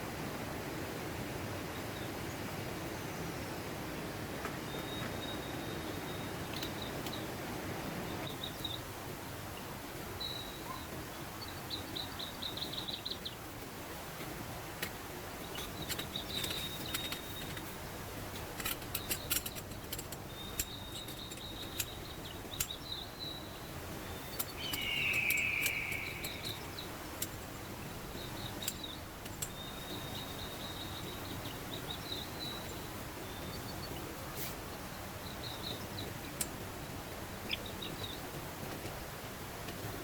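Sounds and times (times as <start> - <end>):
bird calls: 4.6 - 7.4, 9.5 - 13.5, 15.4 - 18.0, 18.6 - 38.4
mountain stream rushing: 23.4 - 30.6
insect trills: 24.2 - 26.9
sharp clicks: 24.4 - 27.4
loud call: 24.7 - 26.6.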